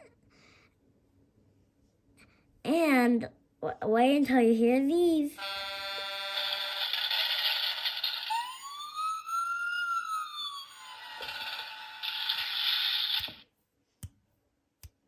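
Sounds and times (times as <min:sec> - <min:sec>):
electronic siren wail: 0:05.4 - 0:13.3.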